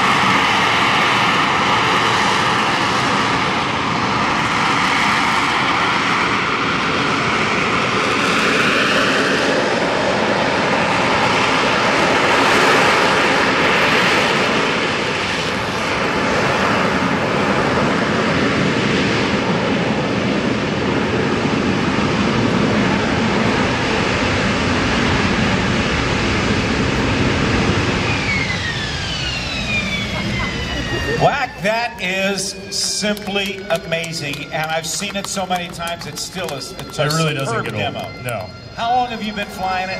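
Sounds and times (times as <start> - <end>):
jet engine roaring: 0.0 - 39.9
high whistle gliding down: 27.8 - 39.9.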